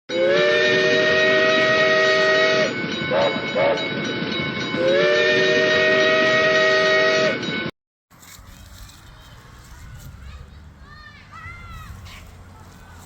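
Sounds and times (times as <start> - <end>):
steam locomotive chime whistle: 0.1 - 7.7.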